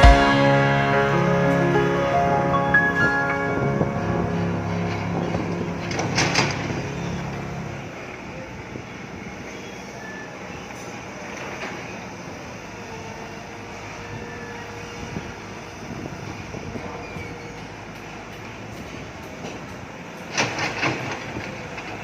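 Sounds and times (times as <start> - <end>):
pitched tonal sound: 0.0 - 7.8.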